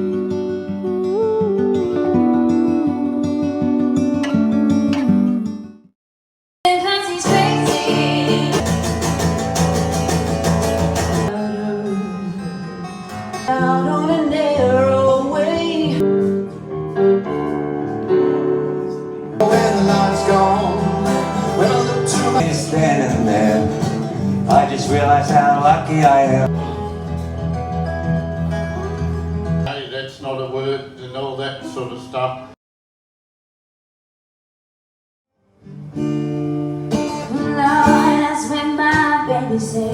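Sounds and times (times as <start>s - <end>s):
person singing: 0.0s - 5.6s, 6.7s - 8.6s, 11.3s - 16.0s, 19.4s - 26.7s
acoustic guitar music: 0.0s - 5.9s, 6.7s - 30.4s, 35.4s - 39.9s.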